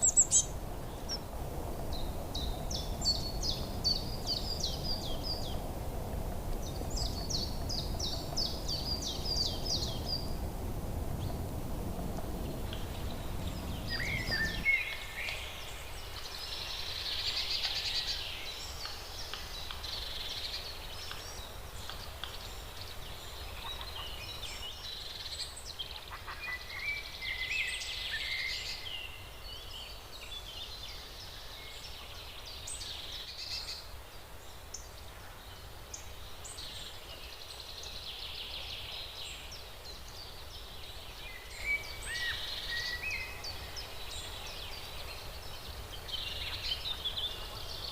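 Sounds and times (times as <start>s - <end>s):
birds chirping and calling: 12.9s - 15.4s.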